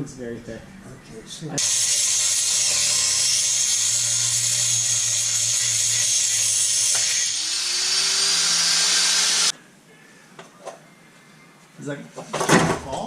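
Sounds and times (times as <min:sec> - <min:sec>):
power tool running: 0:01.6 - 0:09.5.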